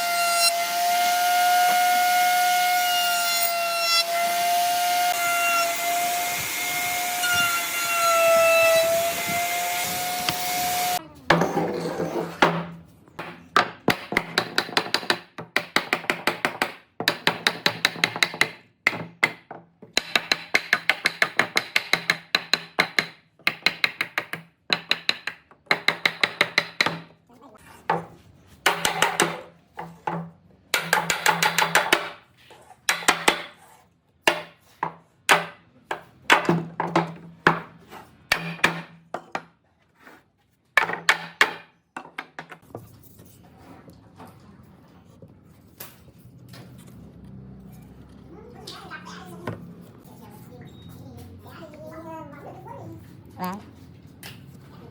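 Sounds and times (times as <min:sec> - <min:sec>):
tool striking wood rapidly: 0:30.7 - 0:32.2.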